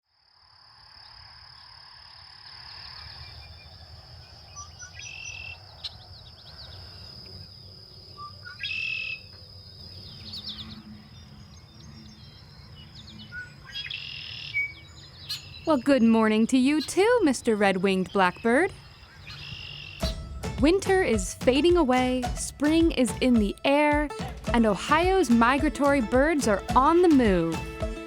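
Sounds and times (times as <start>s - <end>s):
blackbirds singing buzzy trills: 1.0s - 20.2s.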